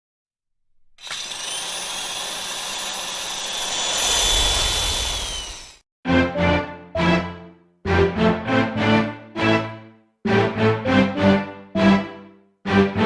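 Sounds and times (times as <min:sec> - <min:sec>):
motor-like whine: 0:01.0 - 0:05.8
rushing noise: 0:03.7 - 0:05.8
music: 0:06.1 - 0:13.0.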